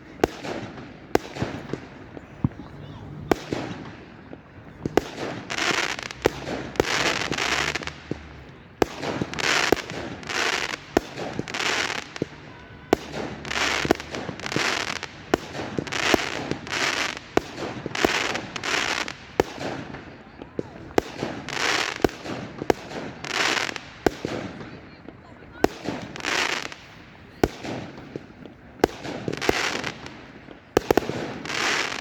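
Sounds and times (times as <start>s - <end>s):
fireworks hissing crackle: 0.0s - 24.8s, 25.5s - 32.0s
fireworks bangs: 0.0s - 32.0s.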